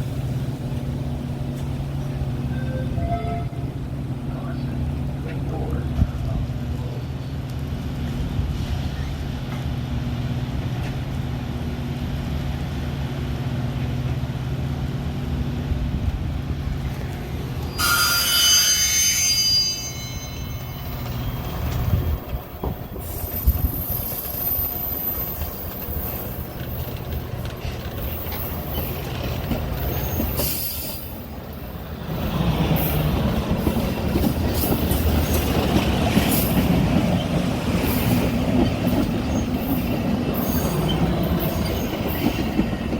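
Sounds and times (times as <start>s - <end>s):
train wheels rolling and squealing: 0.0s - 5.4s, 6.8s - 9.8s, 16.7s - 42.9s
train low hum: 0.0s - 42.9s
shrill high squeal: 17.7s - 22.2s.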